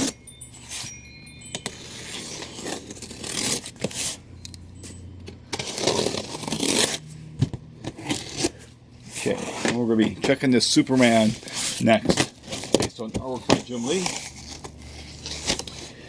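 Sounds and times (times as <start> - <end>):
cardboard scraping and rustling: 2.0 - 4.2, 5.6 - 7.0, 7.9 - 16.0.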